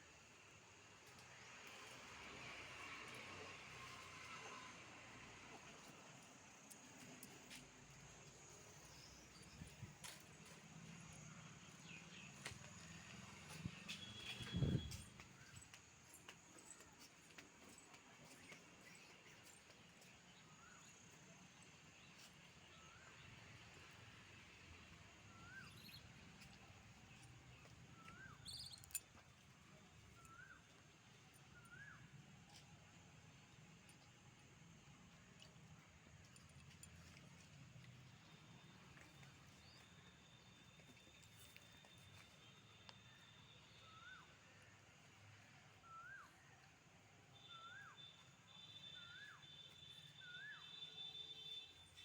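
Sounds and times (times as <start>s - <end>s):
bird high chirps: 28.0s - 29.0s
faint whistled animal call: 45.8s - 46.5s, 47.3s - 51.8s.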